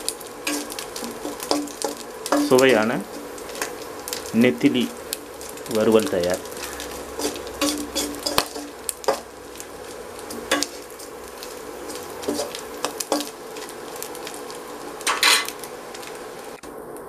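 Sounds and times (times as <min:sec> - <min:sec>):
fish sizzling in oil: 0:00.0 - 0:17.0
metal spatula clinking and scraping: 0:00.4 - 0:03.6, 0:06.4 - 0:09.3, 0:10.2 - 0:13.7, 0:15.1 - 0:15.6.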